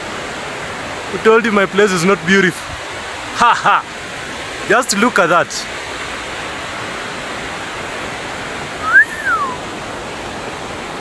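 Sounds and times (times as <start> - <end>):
river rushing: 0.0 - 11.0
rising and falling whistle: 8.8 - 9.6.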